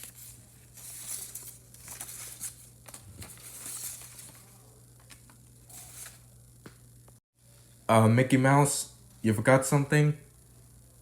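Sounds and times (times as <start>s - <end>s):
rustling and crinkling handling: 0.0s - 6.3s
steady low hum: 0.0s - 11.0s.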